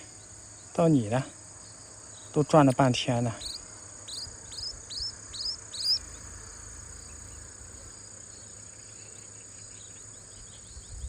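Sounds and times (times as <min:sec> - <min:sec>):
high insect drone: 0:00.0 - 0:11.0
young bird chirping: 0:01.8 - 0:06.4.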